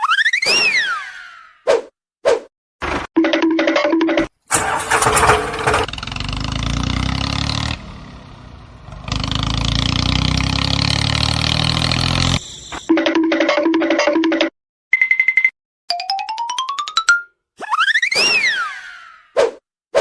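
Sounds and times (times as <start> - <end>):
tractor engine starting and idling: 4.5 - 10.8.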